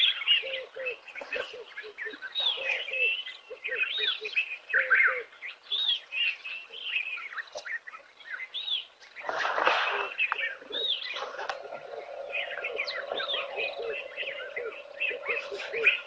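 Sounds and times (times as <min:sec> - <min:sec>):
birds chirping and whistling: 0:00.0 - 0:16.0
low steady hum: 0:09.7 - 0:16.0.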